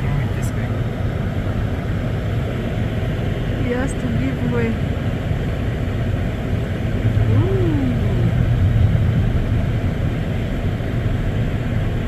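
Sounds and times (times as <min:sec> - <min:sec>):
car driving on snowy road: 0:00.0 - 0:12.0.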